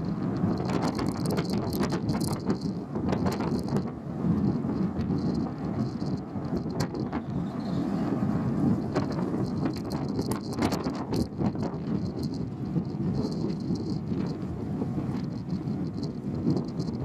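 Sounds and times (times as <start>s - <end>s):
sharp clicks and knocks: 0.0s - 7.2s, 8.8s - 14.4s
ferry low rumble: 0.0s - 17.0s.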